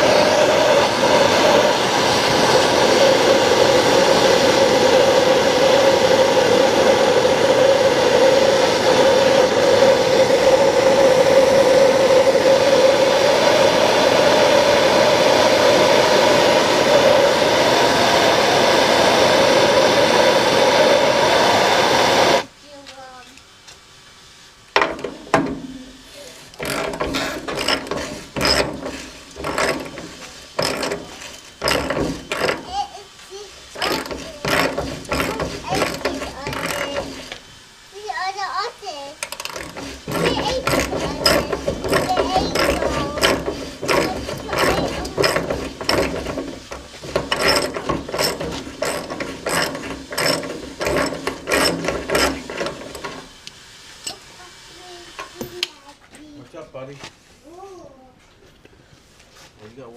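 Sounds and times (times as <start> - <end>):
ratchet wrench rattling: 26.5 - 32.8, 33.8 - 37.4, 39.2 - 53.2.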